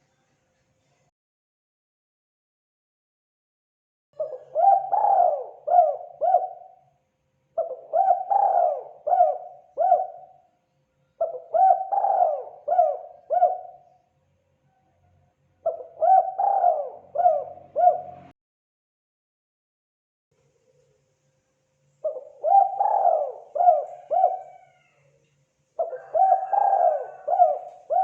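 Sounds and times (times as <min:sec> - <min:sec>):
dove cooing: 0:04.2 - 0:06.8, 0:07.6 - 0:10.4, 0:11.2 - 0:14.0, 0:15.6 - 0:18.3, 0:22.0 - 0:25.1, 0:25.8 - 0:28.0.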